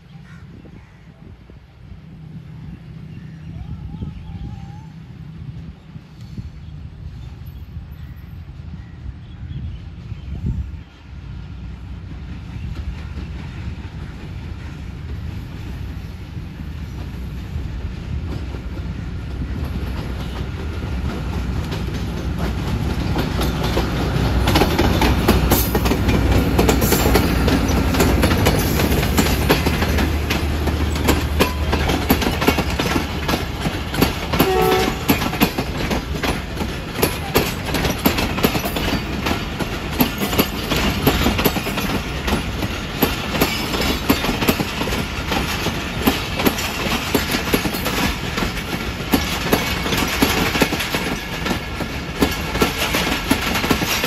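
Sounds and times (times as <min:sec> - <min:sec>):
train passing: 0:00.0 - 0:54.0
wheels clacking over rail joints: 0:16.8 - 0:54.0.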